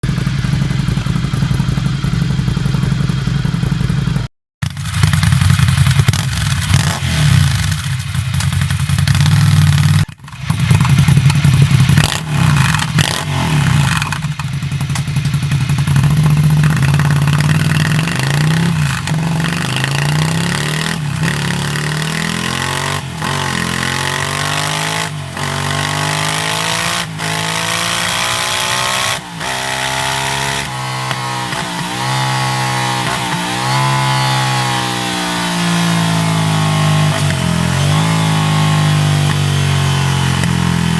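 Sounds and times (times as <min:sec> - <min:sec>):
motorcycle engine revving and accelerating: 0:00.0 - 0:40.9.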